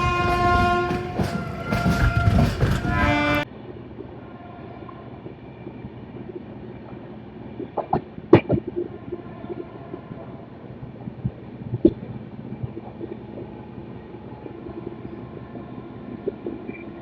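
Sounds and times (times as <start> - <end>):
train horn: 0.0 - 3.5
train running rumble: 0.0 - 4.3.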